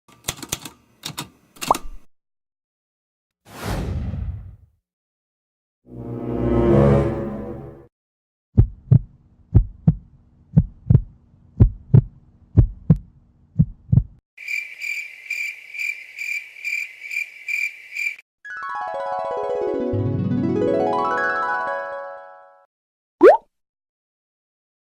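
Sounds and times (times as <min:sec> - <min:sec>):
heartbeat thumps: 0:08.6 - 0:14.2
crickets chirping effect: 0:14.4 - 0:18.2.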